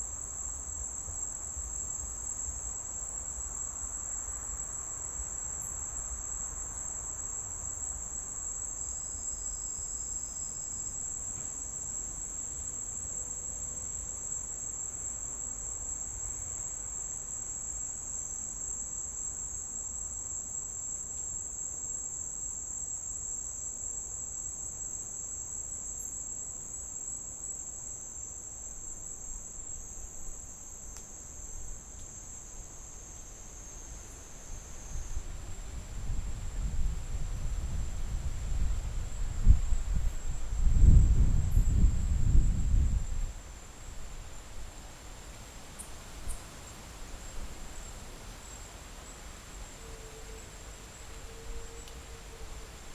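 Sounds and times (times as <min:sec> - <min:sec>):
insects trilling: 0:00.0 - 0:52.9.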